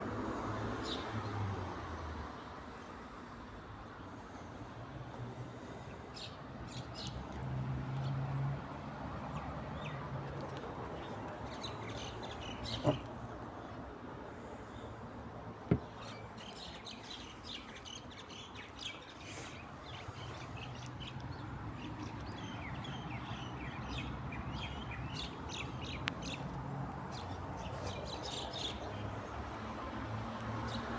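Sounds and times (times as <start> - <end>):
small birds chirping: 9.3 - 15.0, 15.6 - 29.6.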